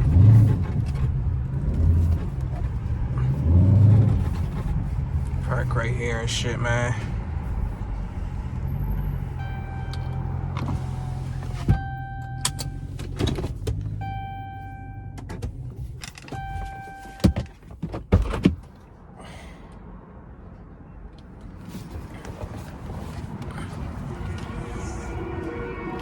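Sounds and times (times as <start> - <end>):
car engine idling: 0.0 - 19.8, 21.1 - 26.0
car warning chime: 9.3 - 13.0, 13.9 - 15.4, 16.3 - 17.5
car door clunks: 11.5 - 14.2, 15.1 - 18.8.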